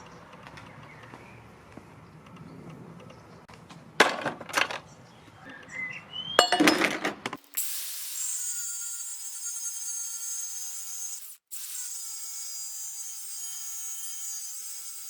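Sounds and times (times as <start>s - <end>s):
power tool high whine: 7.5s - 15.0s.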